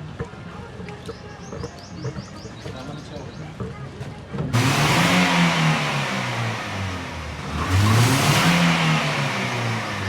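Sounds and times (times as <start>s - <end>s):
car engine revving hard: 4.6s - 10.0s.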